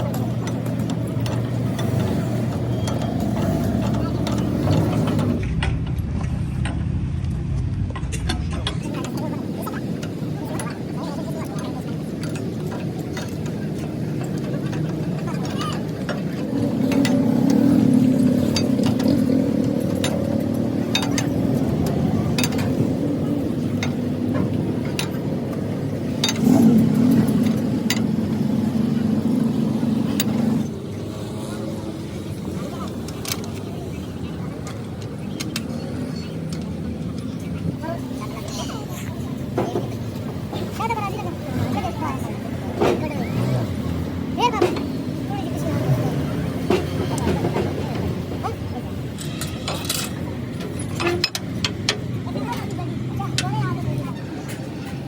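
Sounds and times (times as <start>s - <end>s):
metallic clicks and knocks: 0.0s - 10.8s, 11.4s - 30.7s, 46.6s - 55.0s
engine running at low revs: 0.0s - 55.0s
sharp metallic clicks and taps: 49.2s - 54.8s.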